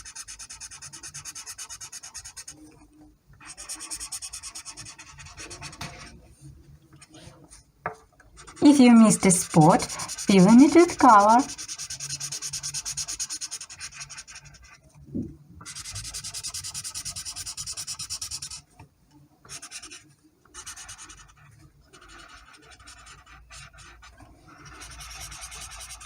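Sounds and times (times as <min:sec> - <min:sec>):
colouring tool rubbing on paper: 0:00.0 - 0:02.7, 0:03.4 - 0:06.2, 0:08.4 - 0:14.8, 0:15.6 - 0:18.7, 0:19.4 - 0:26.0.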